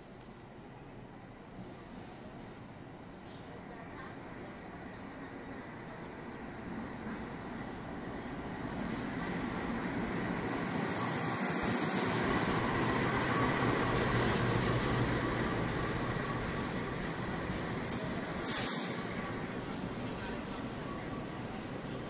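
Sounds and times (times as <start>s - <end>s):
locomotive engine: 8.5s - 22.0s
hiss: 10.4s - 13.8s, 18.0s - 19.4s.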